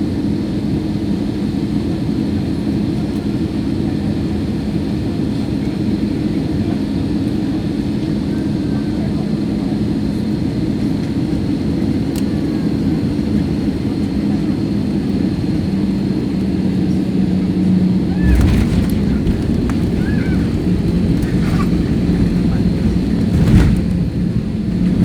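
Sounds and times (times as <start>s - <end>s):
airliner cabin engine rumble: 0.0s - 25.0s
heavy low rumble: 17.9s - 25.0s
steady hum: 18.0s - 25.0s.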